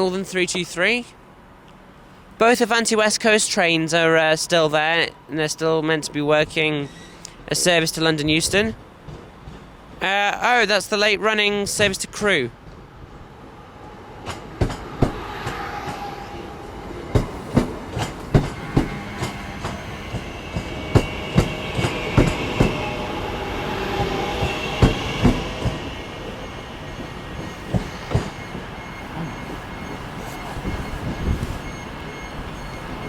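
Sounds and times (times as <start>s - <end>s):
faint wheel squeal: 6.8s - 7.4s, 26.0s - 33.0s
train wheels clattering over joints: 17.1s - 23.0s, 23.9s - 33.0s.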